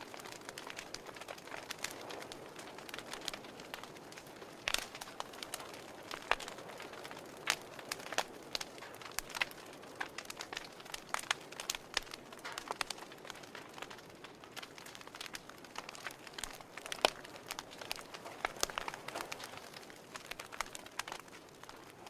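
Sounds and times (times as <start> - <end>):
soft fire hiss: 0.0 - 22.0
wood fire pops and snaps: 0.0 - 22.0.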